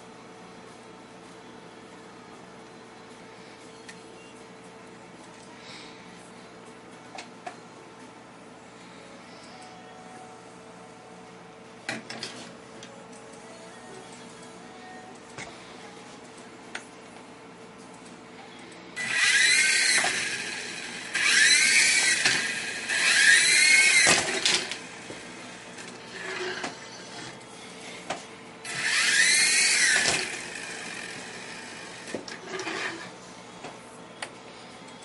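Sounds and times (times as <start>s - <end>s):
toy helicopter rotors whining: 19.0s - 27.1s, 28.6s - 33.1s.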